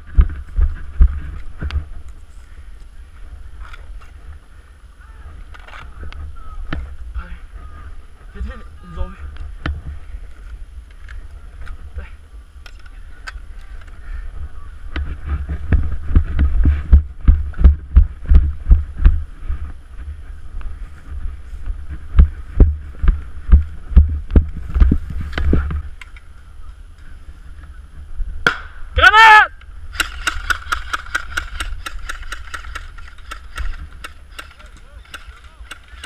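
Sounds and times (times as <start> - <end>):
wind rumble on microphone: 0.0 - 29.0
running footsteps thumping: 21.5 - 25.9.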